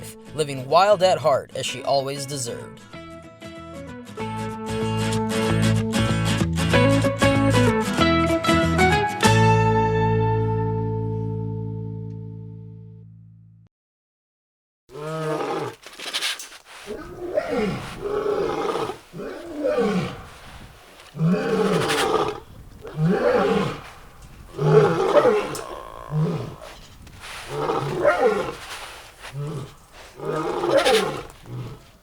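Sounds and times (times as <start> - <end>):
tiger roaring: 14.9 - 32.0.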